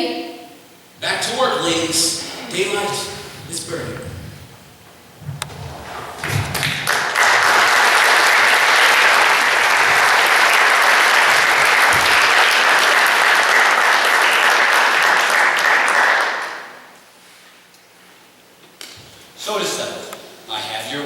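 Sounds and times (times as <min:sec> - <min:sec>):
audience applauding: 0:05.4 - 0:16.9.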